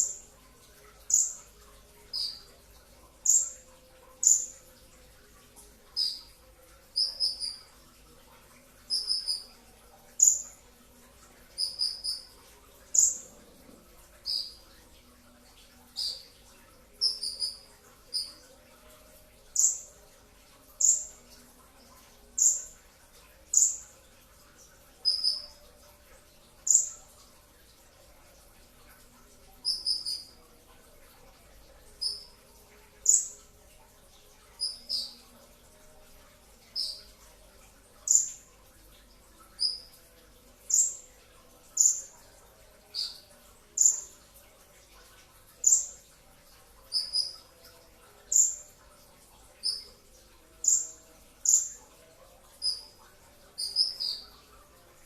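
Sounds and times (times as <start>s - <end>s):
sunbird high-pitched chirps: 2.1s - 2.5s, 6.0s - 6.2s, 6.9s - 7.7s, 8.9s - 9.6s, 11.5s - 12.3s, 14.2s - 14.6s, 15.9s - 16.3s, 17.0s - 18.4s, 25.0s - 25.6s, 29.6s - 30.4s, 34.6s - 35.2s, 36.7s - 37.1s, 39.6s - 39.9s, 46.9s - 47.4s, 53.6s - 54.3s.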